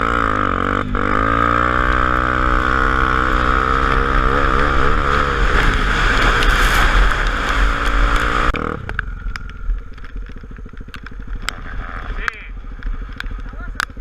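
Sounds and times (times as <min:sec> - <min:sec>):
motorcycle engine: 0:00.0 - 0:14.0
wind rushing: 0:03.1 - 0:09.3.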